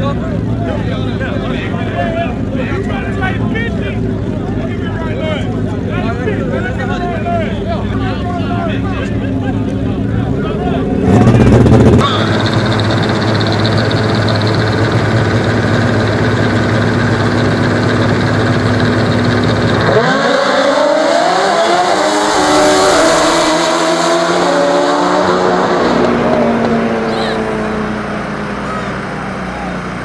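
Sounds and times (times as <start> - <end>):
motorcycle engines droning: 0.0 - 30.0
motorcycle engine revving away: 10.8 - 30.0
loud engine blast: 10.9 - 30.0.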